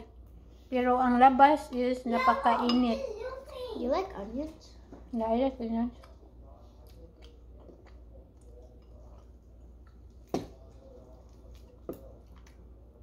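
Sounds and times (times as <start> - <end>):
low steady hum: 0.0 - 13.0
chewing: 5.9 - 13.0.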